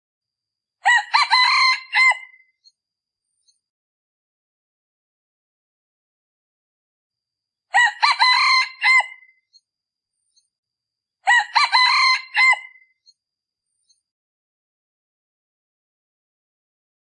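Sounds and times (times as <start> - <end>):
junglefowl crowing: 0.8 - 2.4, 7.7 - 9.4, 11.2 - 12.9.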